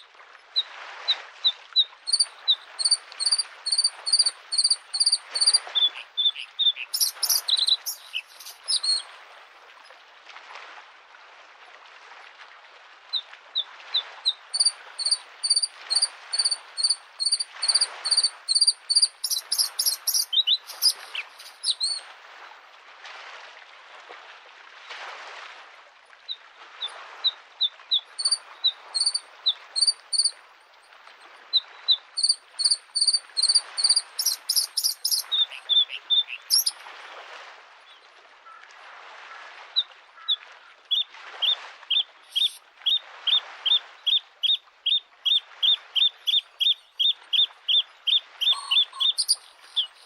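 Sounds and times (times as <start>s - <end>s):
small waves washing on shore: 0.0s - 50.0s
bird singing: 2.1s - 9.0s, 14.5s - 22.0s, 27.9s - 28.4s, 29.0s - 30.3s, 32.2s - 36.8s, 41.9s - 42.6s, 44.1s - 50.0s.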